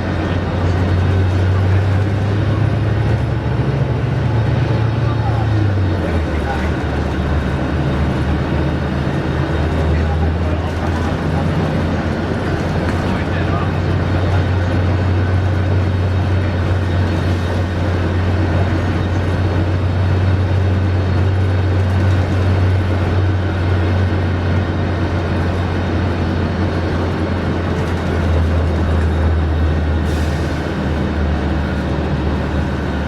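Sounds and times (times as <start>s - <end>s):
bus engine droning: 0.0s - 33.0s.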